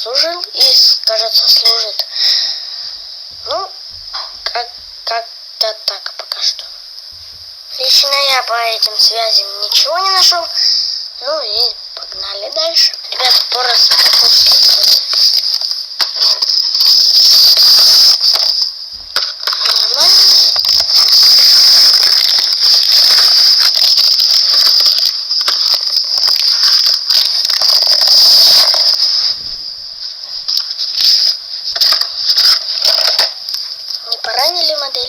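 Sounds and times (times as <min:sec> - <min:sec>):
high-pitched hiss: 0:00.0 - 0:35.0
small clicks and scrapes: 0:11.6 - 0:29.5, 0:30.2 - 0:35.0
packaging rustling and crinkling: 0:13.9 - 0:33.4.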